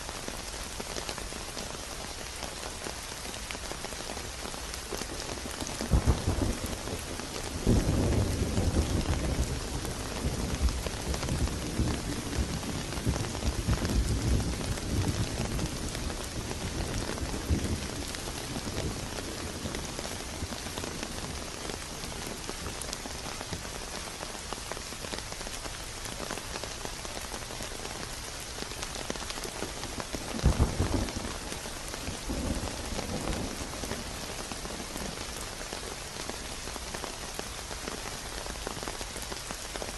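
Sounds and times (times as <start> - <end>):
steady rain: 0.0 - 39.9
thunder rumbling: 5.8 - 21.6, 30.2 - 35.2.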